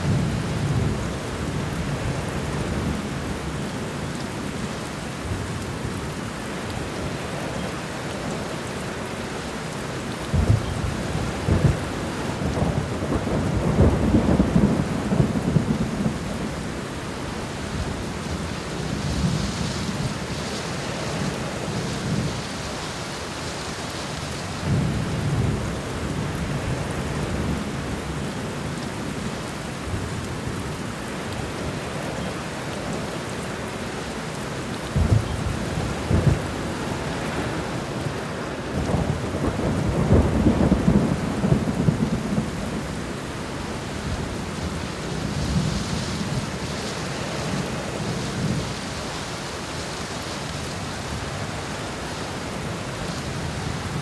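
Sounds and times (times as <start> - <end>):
heavy rain: 0.0 - 54.0
thunder rumbling: 10.3 - 16.8, 34.9 - 48.9.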